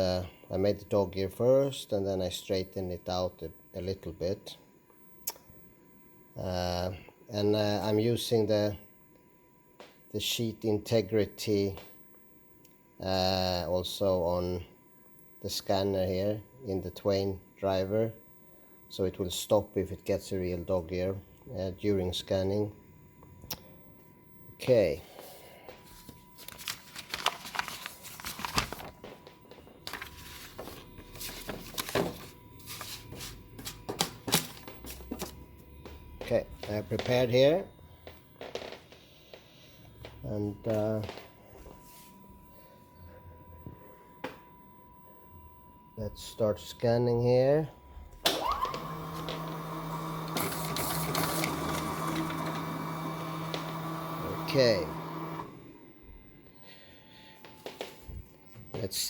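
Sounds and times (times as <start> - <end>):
document scanner motor hum: 25.2 - 38.4, 47.8 - 57.4
paper rustling: 25.8 - 29.2, 29.8 - 35.4, 49.2 - 53.7.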